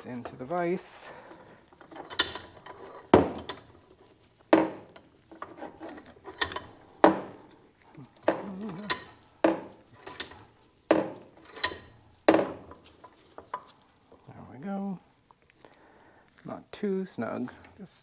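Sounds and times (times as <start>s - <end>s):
light metal scraping: 0.0s - 14.4s
vise metal clanks and clicks: 1.3s - 13.7s.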